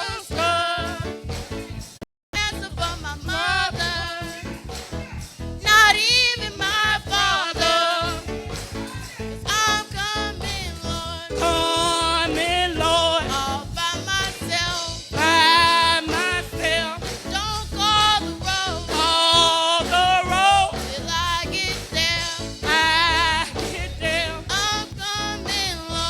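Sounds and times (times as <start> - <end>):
person singing with vibrato: 0.0 - 1.2, 5.6 - 8.6, 9.5 - 26.0
band accompaniment: 0.0 - 3.0, 3.8 - 26.0.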